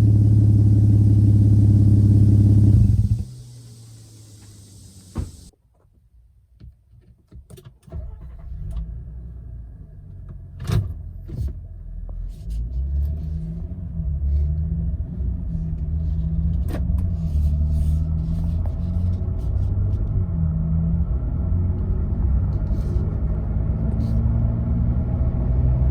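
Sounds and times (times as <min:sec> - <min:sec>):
engine exhaust rumble: 0:00.0 - 0:05.5, 0:10.9 - 0:25.9.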